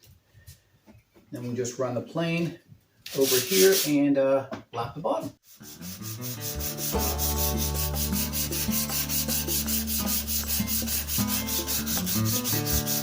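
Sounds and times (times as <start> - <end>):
hand plane rubbing on sandpaper: 3.1 - 4.0, 5.5 - 13.0.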